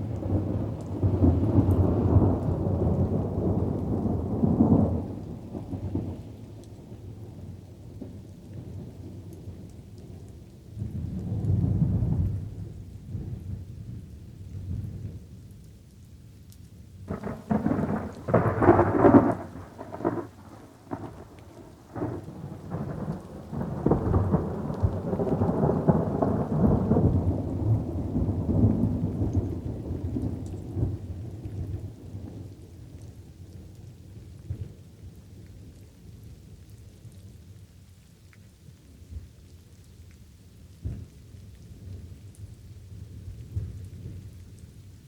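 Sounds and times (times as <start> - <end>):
rolling thunder rumble: 0.0 - 6.2, 17.1 - 33.3
crackling thunderclap: 0.0 - 15.2, 17.1 - 34.9, 40.8 - 44.9
light rainfall: 0.0 - 45.0.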